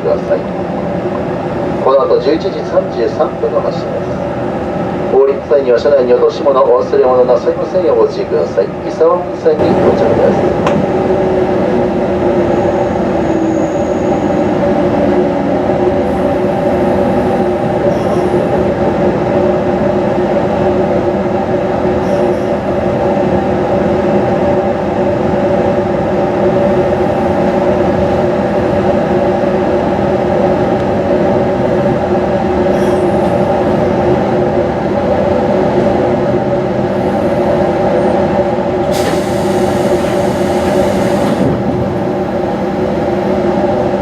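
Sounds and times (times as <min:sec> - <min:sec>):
train running rumble and whine: 0:00.0 - 0:44.0.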